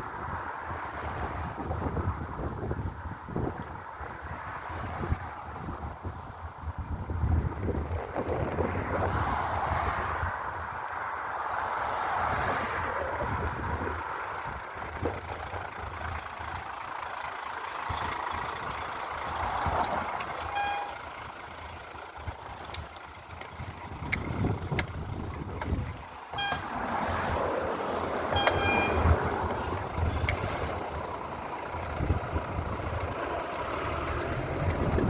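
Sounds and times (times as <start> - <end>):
wind rushing over microphone: 0.0 - 16.2, 23.5 - 31.2, 34.2 - 35.0
passing road traffic: 0.0 - 35.0
short electronic beeps: 20.4 - 21.0, 26.3 - 26.7, 28.3 - 29.2.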